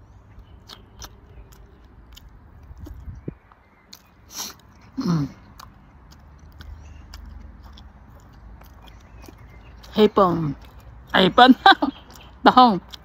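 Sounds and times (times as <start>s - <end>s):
person chewing food: 0.3s - 11.2s, 11.9s - 13.0s
wet mouth clicks: 0.6s - 3.2s, 3.9s - 9.8s.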